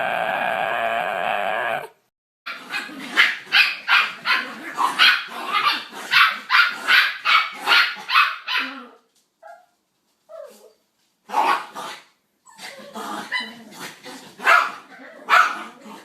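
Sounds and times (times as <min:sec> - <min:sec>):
puppy barking: 0:02.5 - 0:09.8, 0:11.3 - 0:11.7, 0:14.4 - 0:15.8
puppy whining: 0:12.4 - 0:13.6.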